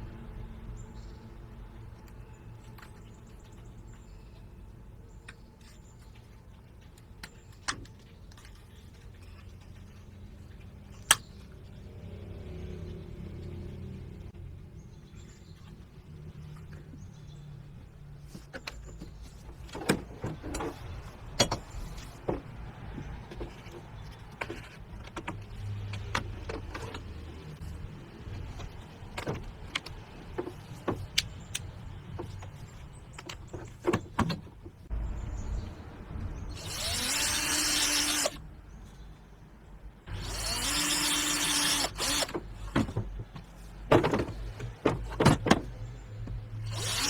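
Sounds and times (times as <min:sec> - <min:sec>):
parts clicking and knocking: 0:18.3 - 0:35.0, 0:40.1 - 0:47.0
low rumble: 0:34.9 - 0:37.2
small electric motor whirring: 0:36.5 - 0:38.4, 0:40.1 - 0:42.3, 0:46.6 - 0:47.0.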